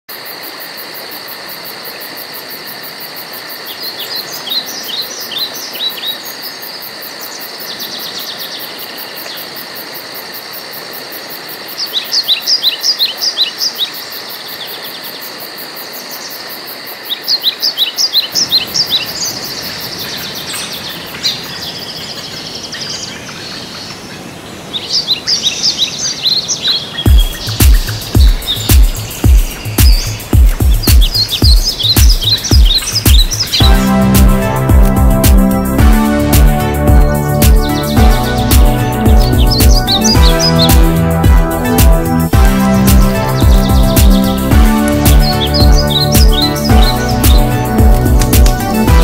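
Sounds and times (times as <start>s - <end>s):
steady background hiss: 0.1s - 34.8s
songbirds chirping: 3.5s - 9.6s, 11.8s - 49.0s.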